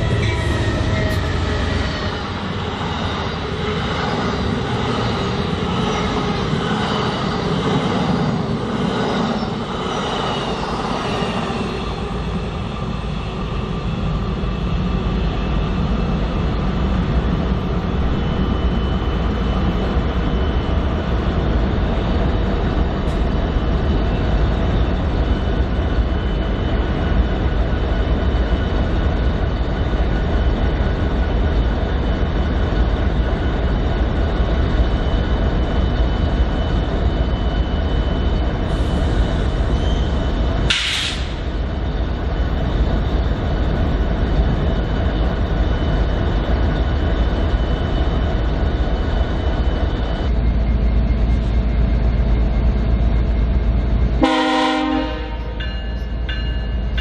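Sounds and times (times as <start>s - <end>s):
sharp high squeal: 0.0s - 2.5s
train wheels rumbling: 0.0s - 57.0s.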